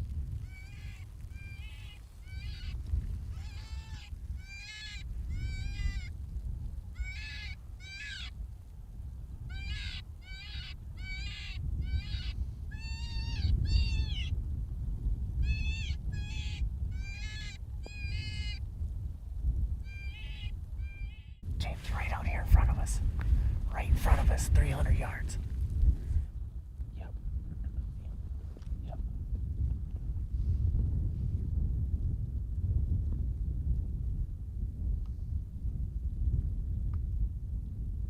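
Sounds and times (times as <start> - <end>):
wind rumble on microphone: 0.0 - 38.0
predator call distress cries: 0.5 - 6.1, 7.0 - 8.3, 9.5 - 14.3, 15.4 - 18.6, 19.9 - 21.4.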